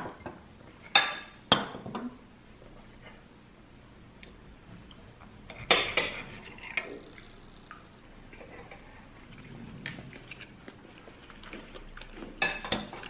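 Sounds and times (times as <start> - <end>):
dishes and cutlery clinking: 5.5 - 6.9, 12.3 - 13.0.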